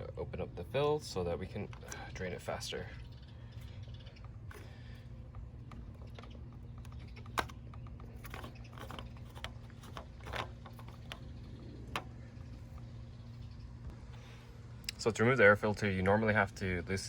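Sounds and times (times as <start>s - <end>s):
low hum: 0.0s - 17.0s
car parts clicking and tapping: 3.6s - 12.9s.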